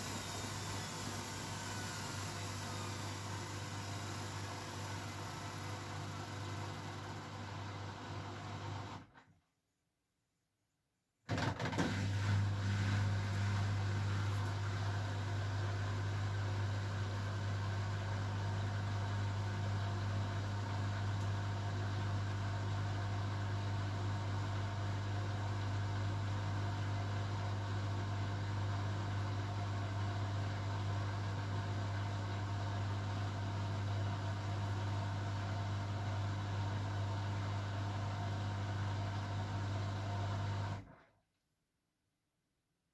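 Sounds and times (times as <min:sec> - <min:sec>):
washing machine running: 0:00.0 - 0:08.7, 0:11.3 - 0:16.8.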